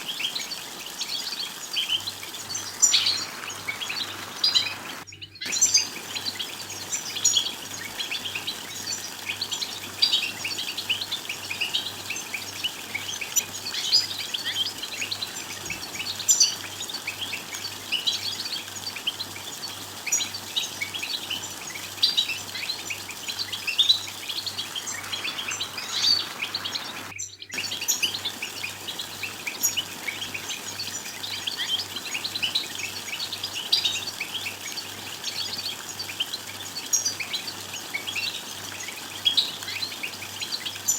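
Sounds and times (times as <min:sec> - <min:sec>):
goldfinches chattering and twittering: 0:00.0 - 0:40.9.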